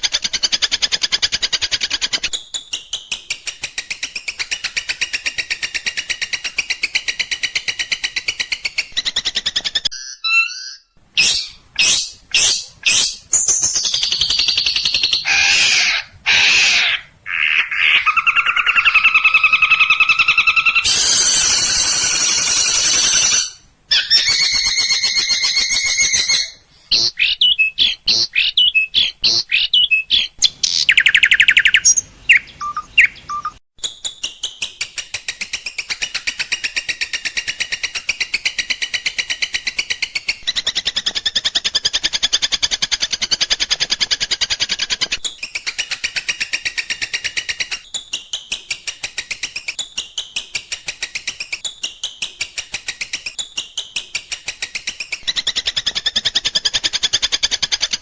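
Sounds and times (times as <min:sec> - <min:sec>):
fast high chattering birdsong: 0:08.2 - 0:33.6
songbird whistles and chirps: 0:08.7 - 0:26.6, 0:27.2 - 0:34.8.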